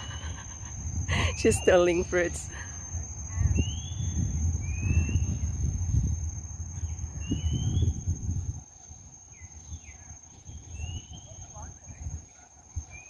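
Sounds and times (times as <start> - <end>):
insect high-pitched drone: 0.0 - 13.0
low rumble on microphone: 2.4 - 13.0
bird rising whistle: 3.3 - 6.0, 6.8 - 8.0.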